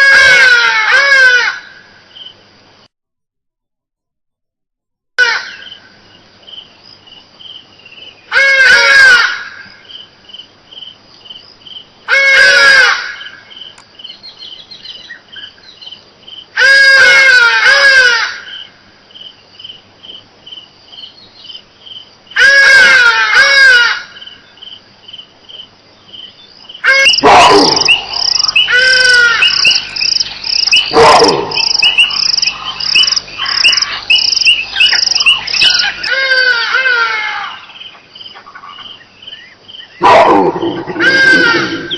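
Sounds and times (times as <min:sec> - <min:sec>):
crickets chirping: 0:01.6 - 0:02.9, 0:05.5 - 0:17.2, 0:18.4 - 0:23.1, 0:24.0 - 0:41.9
harsh bird calls: 0:26.2 - 0:41.9.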